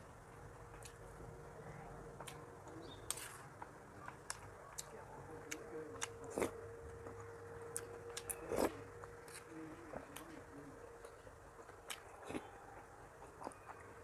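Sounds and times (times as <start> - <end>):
chewing and mouth noises: 0.6 - 14.0.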